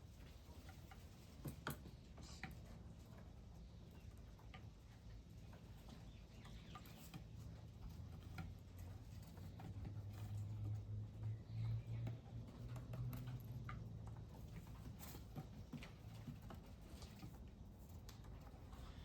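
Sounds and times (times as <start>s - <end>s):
birds pecking ticks and taps: 0.1s - 19.0s.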